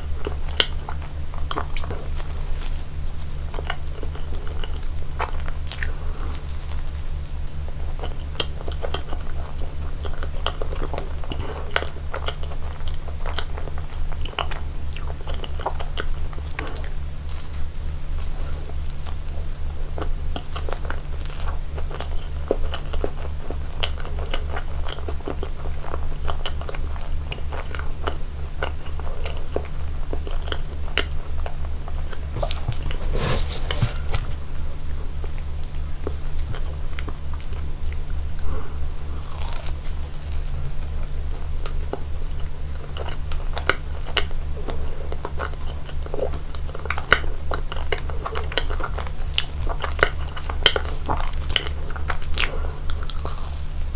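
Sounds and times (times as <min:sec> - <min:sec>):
chewing cake: 0:00.2 - 0:34.6, 0:35.6 - 0:53.9
steady low hum: 0:31.1 - 0:42.6.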